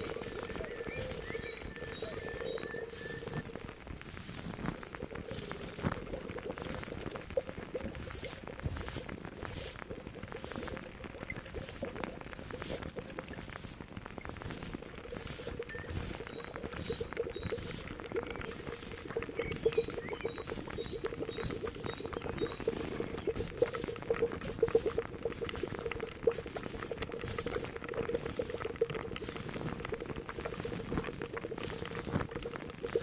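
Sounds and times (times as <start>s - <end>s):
high bird chirp: 0.0s - 3.6s
liquid boiling and bubbling: 0.0s - 33.0s.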